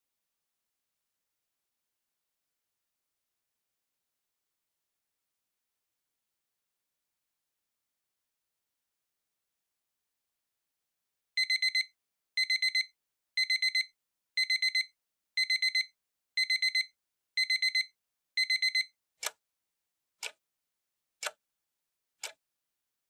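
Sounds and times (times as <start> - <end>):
digital alarm beeping: 11.4 - 18.9.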